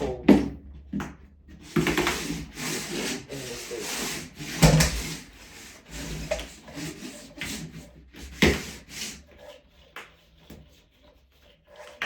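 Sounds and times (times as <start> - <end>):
cable scraping on plastic membrane: 1.5 - 12.0.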